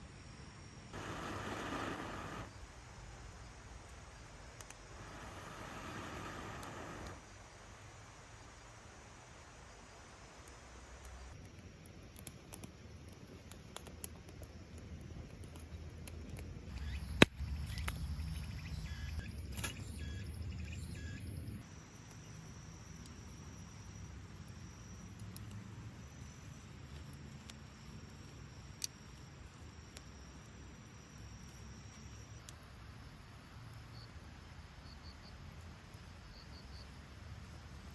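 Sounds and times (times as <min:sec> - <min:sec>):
campfire wood snapping: 0:04.6 - 0:07.2, 0:10.4 - 0:18.1, 0:25.1 - 0:31.5.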